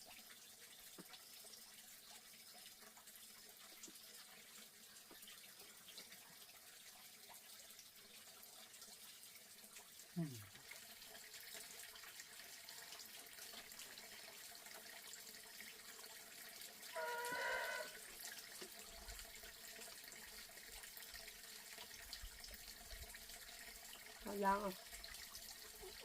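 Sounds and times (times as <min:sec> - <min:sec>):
faint running water: 0:00.0 - 0:26.0
high-pitched call: 0:17.0 - 0:18.0.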